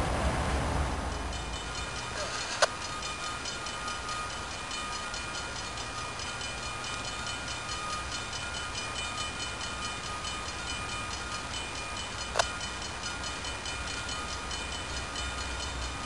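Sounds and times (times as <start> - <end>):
train rumbling by: 0.0 - 16.0.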